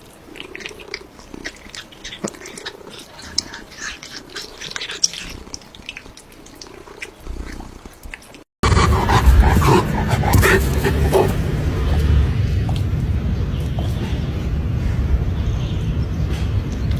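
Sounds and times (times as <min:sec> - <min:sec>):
cat crunching food: 0:00.0 - 0:08.5
cat purring: 0:00.3 - 0:08.0
noisy low rumble: 0:08.6 - 0:16.9.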